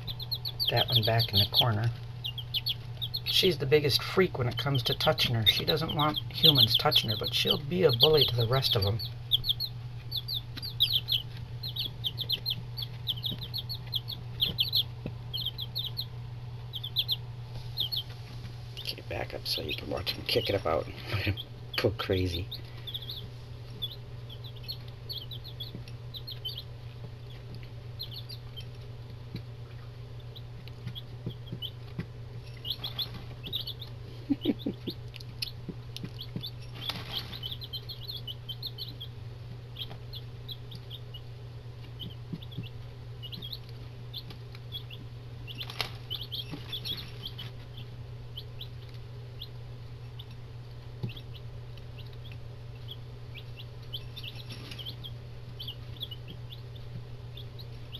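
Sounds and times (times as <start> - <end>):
chicks scuffling in feed: 0.0 - 16.1, 16.8 - 28.9, 30.6 - 35.0, 35.7 - 38.8, 41.8 - 47.8, 53.9 - 57.0
chicks peeping: 0.0 - 57.9
steady low hum: 0.0 - 57.9.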